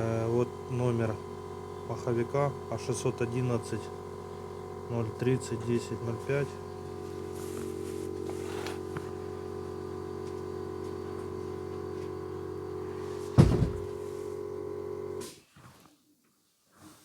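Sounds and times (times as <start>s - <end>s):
mechanical hum: 0.0s - 15.5s
loud knock: 13.4s - 13.9s.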